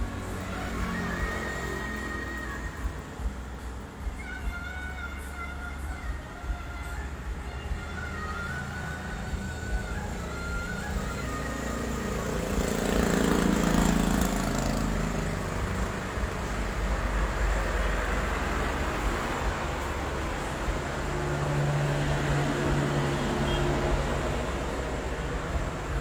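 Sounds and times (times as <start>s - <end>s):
road noise: 0.0s - 26.0s
vehicle engine running: 6.5s - 26.0s.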